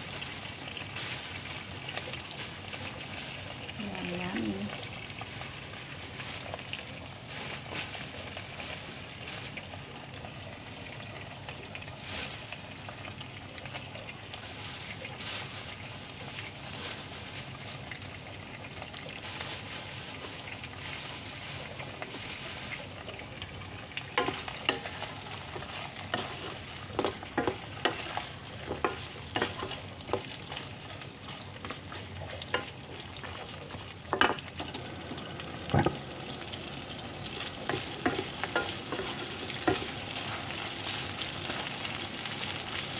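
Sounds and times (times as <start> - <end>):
food sizzling in a pan: 0.0 - 42.9
spatula scraping and knocking pan: 24.2 - 33.5, 37.4 - 41.7.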